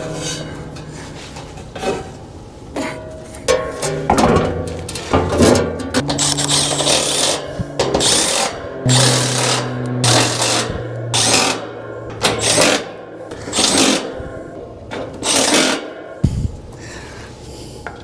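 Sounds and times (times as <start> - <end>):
motor hum: 6.0 - 15.6.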